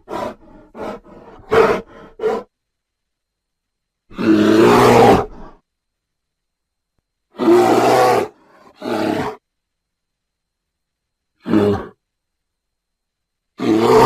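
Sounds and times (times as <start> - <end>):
creature roar: 7.4 - 9.4, 13.6 - 14.0.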